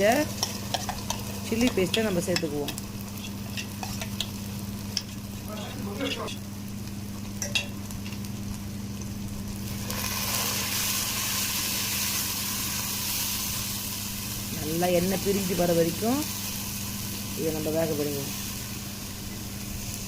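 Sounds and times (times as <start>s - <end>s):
paste sizzling in hot oil: 0.0s - 6.0s, 8.9s - 20.0s
steady low hum: 0.0s - 20.0s
spatula scraping and knocking pan: 0.3s - 4.3s.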